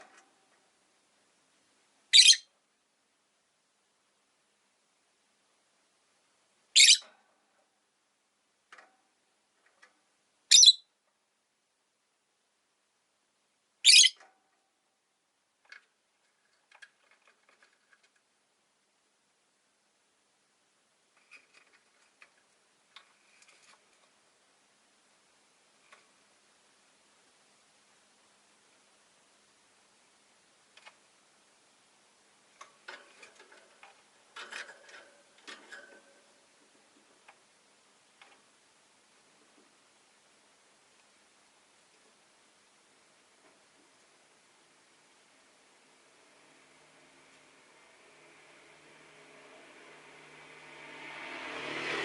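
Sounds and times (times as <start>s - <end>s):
lovebird shrill call: 2.1s - 2.5s, 6.8s - 7.0s, 10.5s - 10.8s, 13.8s - 14.2s.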